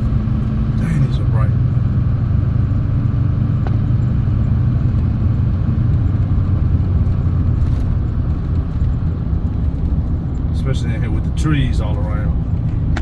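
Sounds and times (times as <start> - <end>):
pickup engine and road noise: 0.0 - 13.0.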